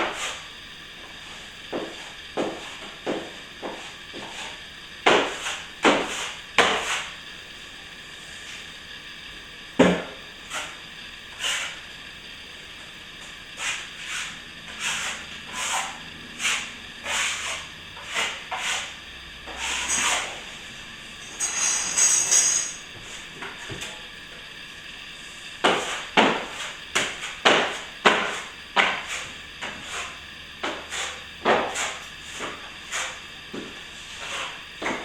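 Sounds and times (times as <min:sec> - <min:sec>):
plaster mixing scraping strokes: 0:00.0 - 0:00.4, 0:01.3 - 0:07.2, 0:10.4 - 0:11.8, 0:13.6 - 0:20.5, 0:25.6 - 0:35.0.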